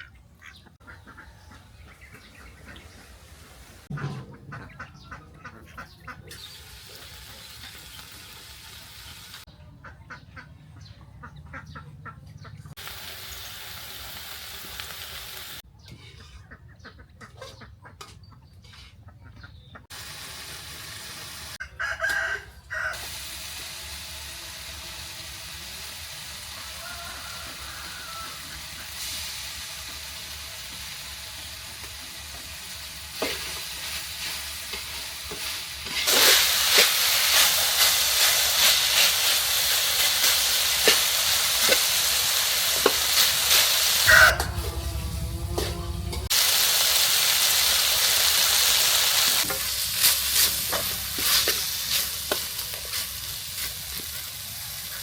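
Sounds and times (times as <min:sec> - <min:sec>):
chickens clucking: 0:00.0 - 0:14.4, 0:15.2 - 0:19.9, 0:26.4 - 0:29.1, 0:32.2 - 0:44.8
rooster crowing: 0:21.6 - 0:23.1, 0:26.6 - 0:28.6, 0:44.0 - 0:45.5.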